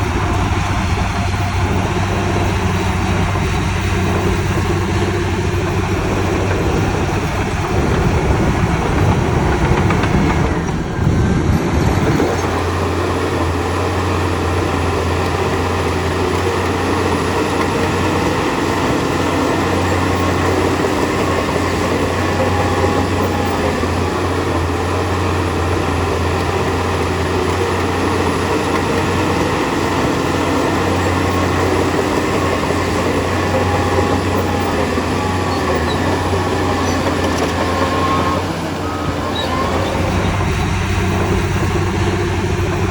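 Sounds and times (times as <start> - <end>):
heavy diesel machinery engine drone: 0.0 - 42.9
rattling clanking machinery: 0.0 - 42.9.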